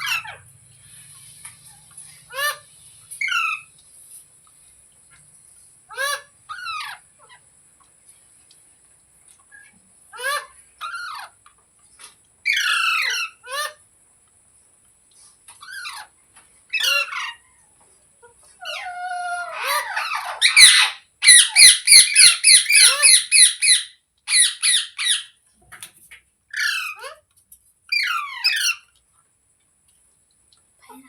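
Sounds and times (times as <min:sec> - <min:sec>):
parrot squawking: 0:00.0 - 0:00.5, 0:01.7 - 0:03.7, 0:05.9 - 0:07.4, 0:10.1 - 0:11.4, 0:12.4 - 0:13.8, 0:15.6 - 0:16.1, 0:16.7 - 0:17.6, 0:18.4 - 0:25.4, 0:26.5 - 0:27.3, 0:27.9 - 0:28.9.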